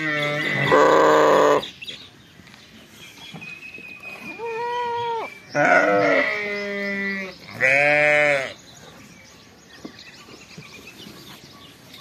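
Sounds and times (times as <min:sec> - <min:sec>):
lambs bleating: 0:00.0 - 0:01.6, 0:04.3 - 0:08.5.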